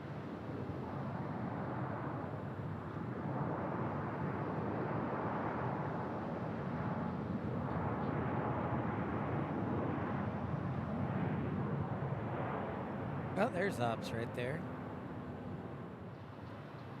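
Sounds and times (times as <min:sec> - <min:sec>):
jet engine rushing: 0:13.0 - 0:14.6.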